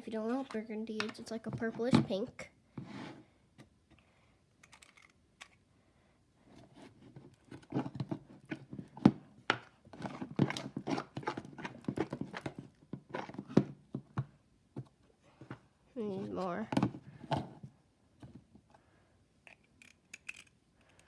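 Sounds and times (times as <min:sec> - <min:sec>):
hands working sticky slime: 0:06.7 - 0:14.3.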